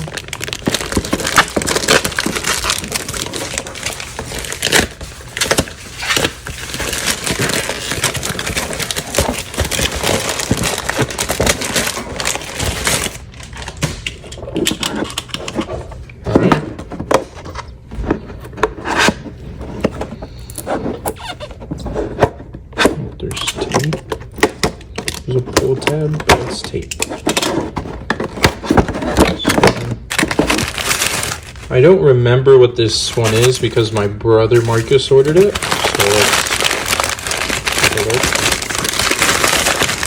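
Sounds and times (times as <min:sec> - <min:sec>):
tape and packaging tearing: 0:00.0 - 0:15.6, 0:33.1 - 0:40.0.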